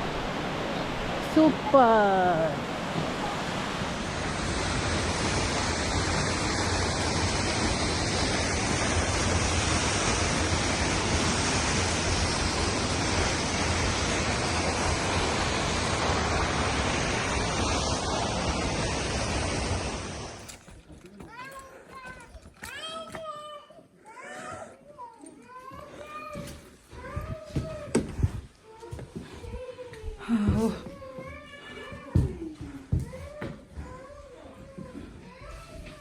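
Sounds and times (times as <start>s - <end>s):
waterfall rushing: 0.0s - 20.4s.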